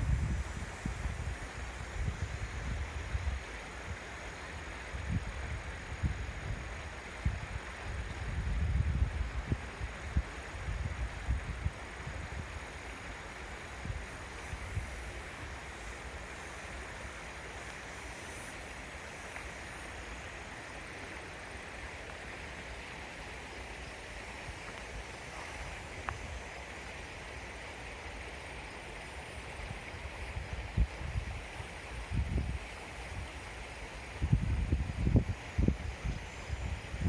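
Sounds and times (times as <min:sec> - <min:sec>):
wind bumps on microphone: 0:00.0 - 0:03.4, 0:05.0 - 0:12.5, 0:30.2 - 0:32.6, 0:34.2 - 0:37.0
creek flowing: 0:00.0 - 0:37.0.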